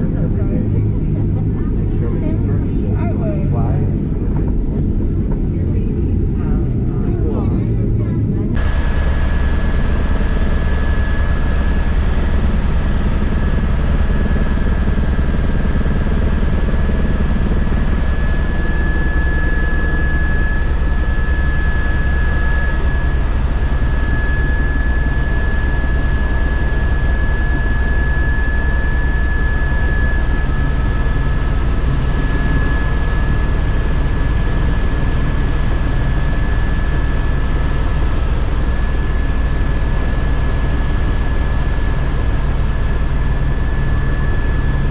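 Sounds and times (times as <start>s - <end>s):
airliner cabin engine rumble: 0.0s - 44.9s.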